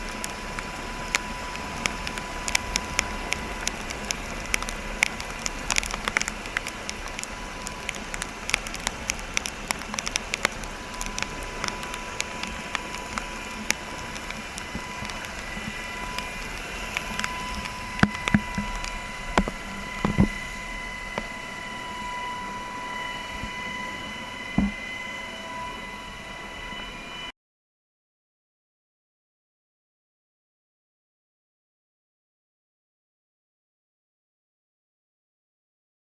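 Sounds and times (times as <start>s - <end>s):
steady hiss: 0.0s - 27.2s
crackles and clicks: 0.0s - 27.3s.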